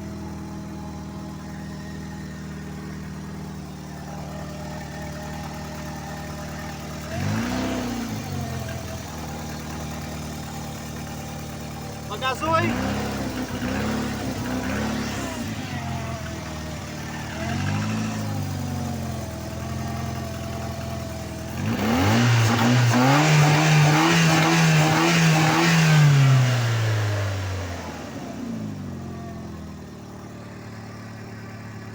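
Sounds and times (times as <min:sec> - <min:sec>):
car engine idling and revving: 0:00.0 - 0:31.9.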